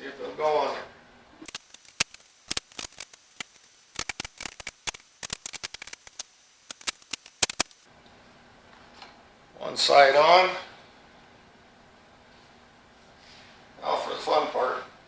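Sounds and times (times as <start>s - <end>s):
tools clicking on steel rim: 1.5s - 7.9s.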